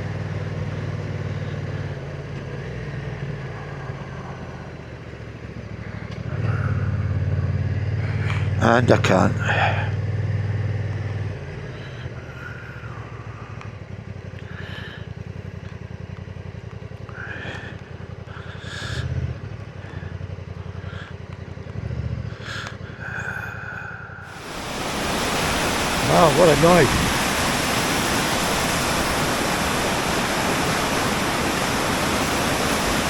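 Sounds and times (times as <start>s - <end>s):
motorcycle engine running: 0.0s - 23.4s
waterfall rushing: 24.3s - 33.0s
person speaking: 25.8s - 27.8s.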